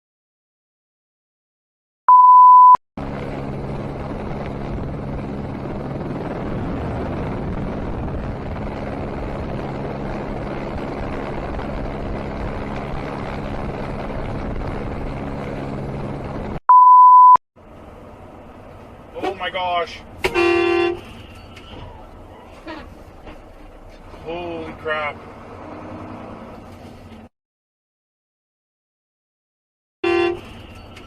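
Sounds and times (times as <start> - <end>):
electronic beep: 2.1 - 2.8, 16.7 - 17.4
road noise: 2.1 - 27.3, 30.0 - 31.0
vehicle engine hum: 3.0 - 27.3, 30.0 - 31.0.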